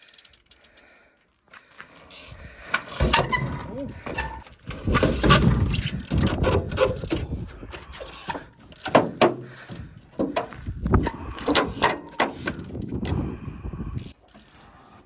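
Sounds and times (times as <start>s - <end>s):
bicycle knocks and clanks on metal: 2.6s - 12.7s.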